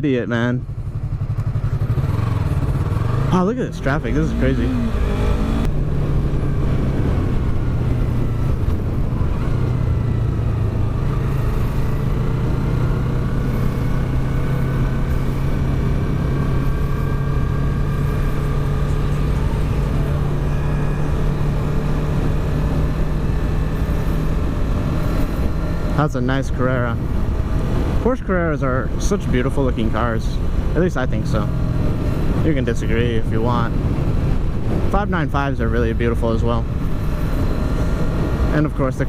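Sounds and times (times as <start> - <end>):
motorcycle engine running: 0.0 - 39.0
wind and road noise: 0.0 - 39.0.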